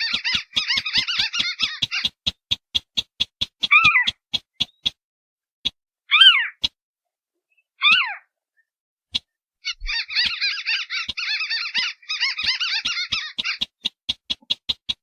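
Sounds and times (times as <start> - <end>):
downward-sliding whining bird calls: 0.0 - 5.0, 6.1 - 6.7, 9.2 - 15.0
sharp ticking bird notes: 0.0 - 5.0, 9.2 - 15.0.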